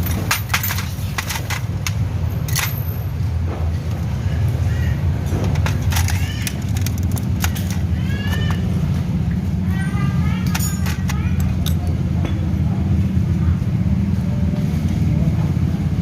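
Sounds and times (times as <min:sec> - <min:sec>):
light metallic clicks and clinks: 0:00.0 - 0:03.1, 0:05.4 - 0:08.6, 0:09.7 - 0:12.4.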